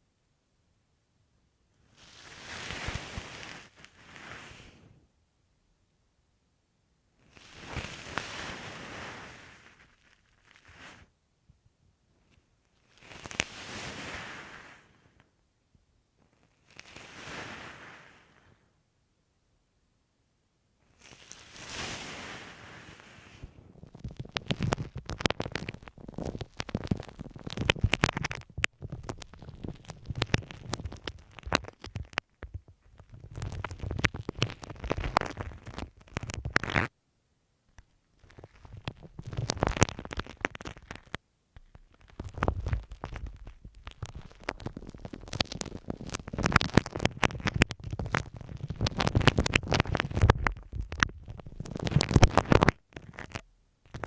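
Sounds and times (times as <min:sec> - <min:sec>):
spiky ball scratching on microphone: 0:02.0 - 0:04.8, 0:07.2 - 0:11.1, 0:12.7 - 0:14.7, 0:21.0 - 0:36.9, 0:38.2 - 0:54.0.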